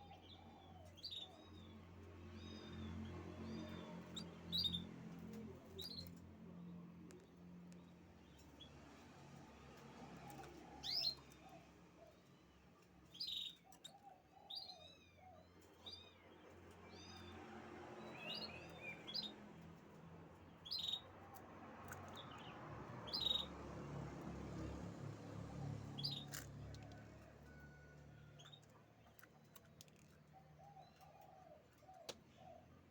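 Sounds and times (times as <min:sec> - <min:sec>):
canary chirping: 0:00.0 - 0:06.3, 0:10.3 - 0:11.4, 0:13.0 - 0:17.4, 0:18.0 - 0:24.8, 0:25.8 - 0:26.6.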